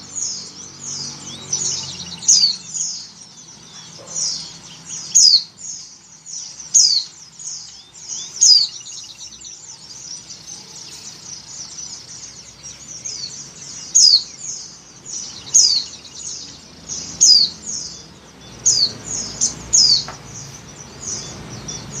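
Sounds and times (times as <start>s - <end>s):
thin high bird chirps: 0.0s - 22.0s.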